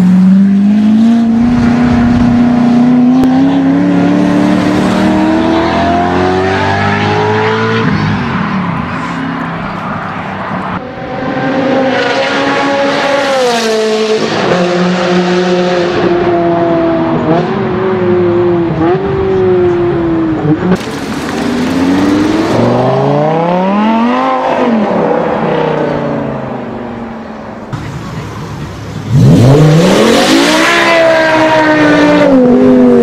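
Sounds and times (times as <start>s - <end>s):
car engine revving through gears: 0.2s - 8.1s, 20.4s - 26.3s, 29.1s - 33.0s
engine revving to a peak: 20.7s - 26.3s.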